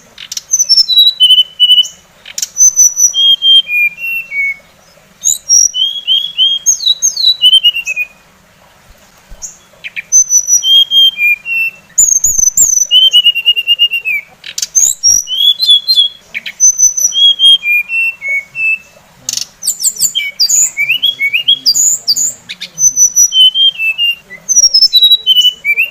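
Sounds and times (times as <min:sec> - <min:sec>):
songbird song: 0:00.0 - 0:25.9.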